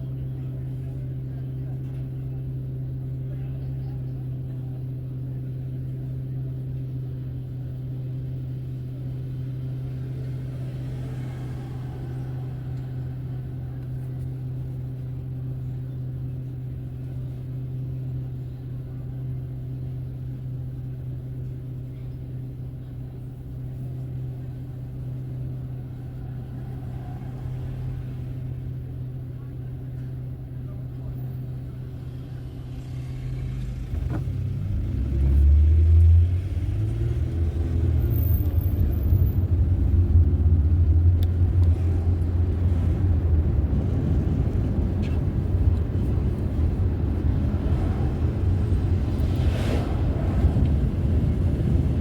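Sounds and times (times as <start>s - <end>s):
car engine and road hum: 0.0s - 52.0s.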